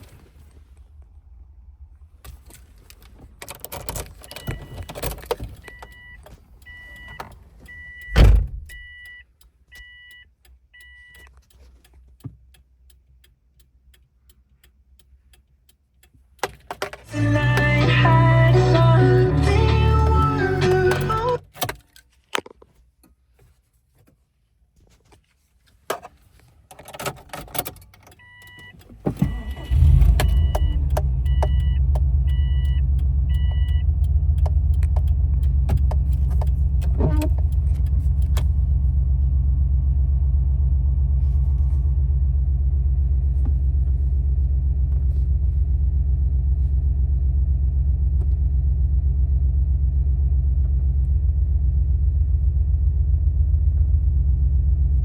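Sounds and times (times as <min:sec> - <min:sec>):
car engine starting and idling: 0:00.0 - 0:21.8, 0:26.7 - 0:55.0.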